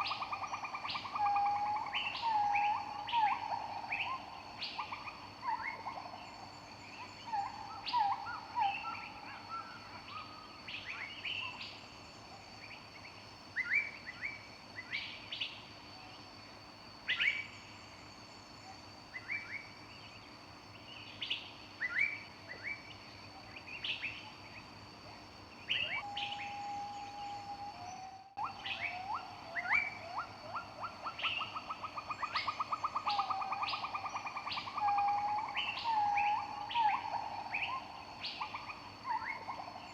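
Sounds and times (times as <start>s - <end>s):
songbirds chirping and whistling: 0.0s - 11.8s, 25.6s - 39.9s.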